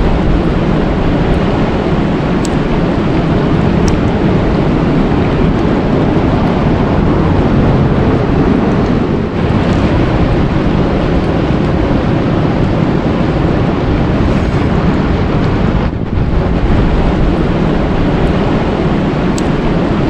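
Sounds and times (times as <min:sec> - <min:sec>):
loud steady rushing noise: 0:00.0 - 0:20.0.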